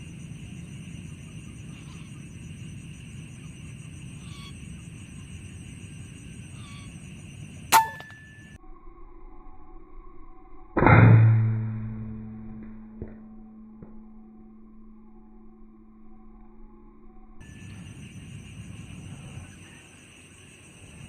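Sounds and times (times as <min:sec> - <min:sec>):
faint chirps: 0:00.0 - 0:10.7
metallic ring: 0:07.7 - 0:08.6.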